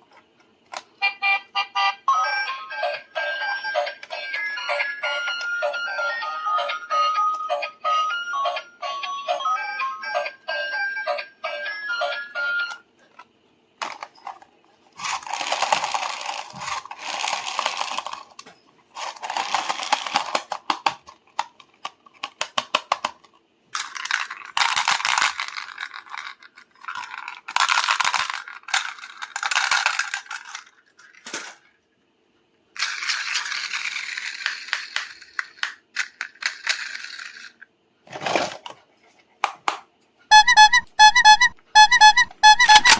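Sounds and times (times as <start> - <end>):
packaging crackling and rattling: 15.0 - 18.4, 19.0 - 31.6
electronic beeping tune: 40.3 - 42.9.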